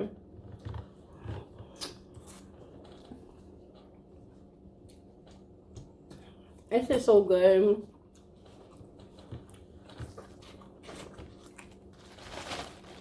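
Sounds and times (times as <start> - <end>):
low steady hum: 0.0 - 13.0
person chewing: 0.5 - 4.0, 8.0 - 12.1.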